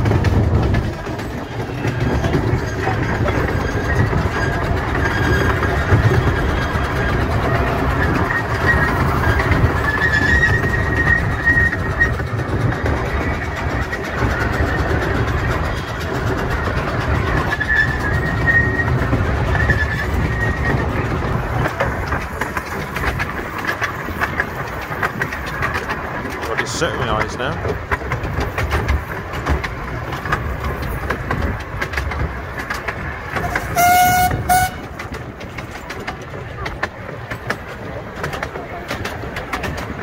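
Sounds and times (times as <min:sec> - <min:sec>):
train wheels clickety-clack: 0:00.0 - 0:40.0
thin high wheel squeal: 0:07.9 - 0:12.2, 0:17.5 - 0:20.8, 0:33.4 - 0:34.9.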